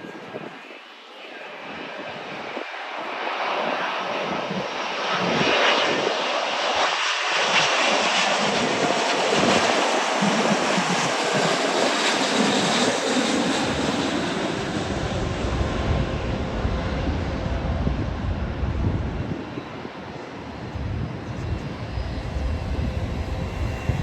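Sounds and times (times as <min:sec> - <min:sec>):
jet engines rushing: 0:00.0 - 0:24.0
deep rumble: 0:20.6 - 0:24.0.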